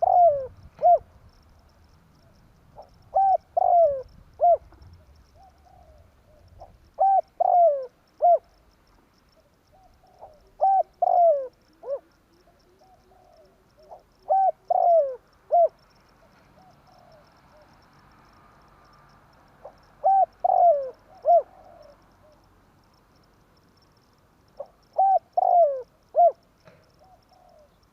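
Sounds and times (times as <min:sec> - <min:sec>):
dove cooing: 0:00.0 - 0:01.2, 0:02.2 - 0:08.6, 0:09.3 - 0:17.8, 0:19.6 - 0:22.5, 0:24.6 - 0:27.9.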